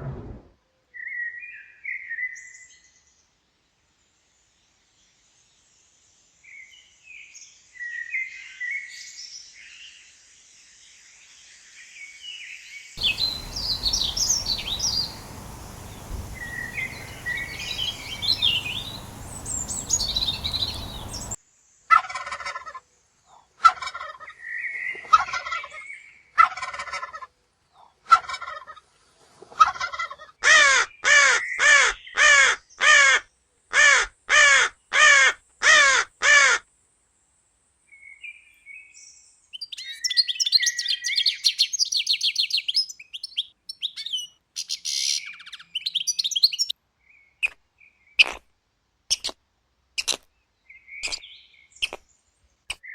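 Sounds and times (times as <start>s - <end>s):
background hiss: 13.0s - 21.4s
fowl-like calls: 13.0s - 21.4s
harsh repeated bird calls: 13.0s - 21.4s
high bird chirping: 13.0s - 21.4s.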